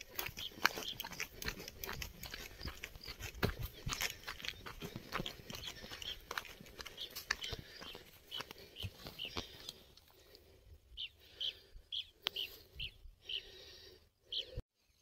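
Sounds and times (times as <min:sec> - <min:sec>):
bird chirping: 0:00.0 - 0:09.9, 0:10.9 - 0:15.0
footsteps on dry ground: 0:00.0 - 0:09.9.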